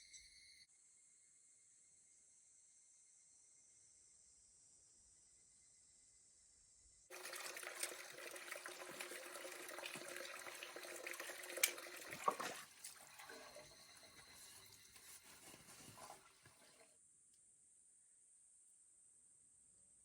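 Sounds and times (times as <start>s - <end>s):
running water splashing: 7.1s - 16.9s.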